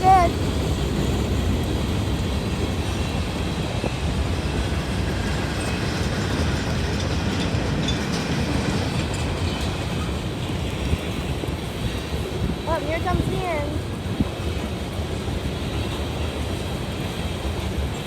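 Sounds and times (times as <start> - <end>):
freight train rolling past: 0.0 - 18.0
wheels clacking on rails: 0.0 - 18.0.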